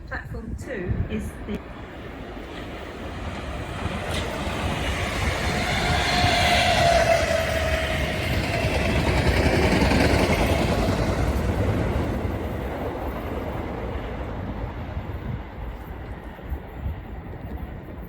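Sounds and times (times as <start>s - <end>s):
train running on rails: 0.0s - 18.0s.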